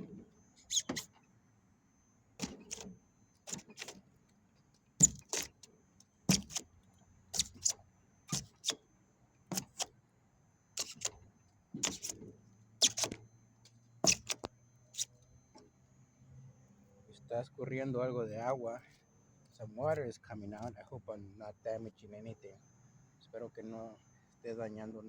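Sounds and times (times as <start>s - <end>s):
chisel chipping foam: 0.6s - 1.1s, 2.4s - 2.9s, 3.5s - 4.0s, 5.0s - 5.6s, 6.3s - 6.7s, 7.4s - 8.8s, 9.5s - 9.9s, 10.8s - 11.2s, 11.8s - 12.2s, 12.8s - 13.2s, 14.0s - 15.1s.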